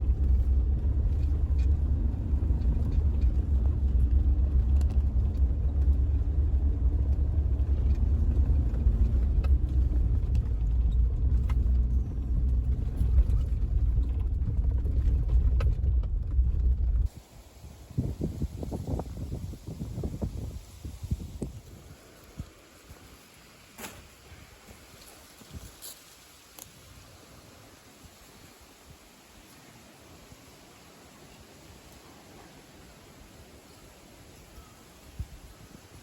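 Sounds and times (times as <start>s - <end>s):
steady low rumble: 0.0s - 22.4s.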